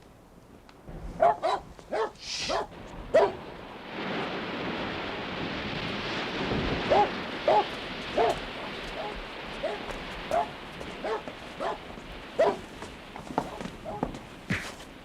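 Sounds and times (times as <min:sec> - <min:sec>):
steady rushing noise: 0:00.8 - 0:15.0
dog barking: 0:01.2 - 0:03.4, 0:06.9 - 0:12.7, 0:13.5 - 0:14.1.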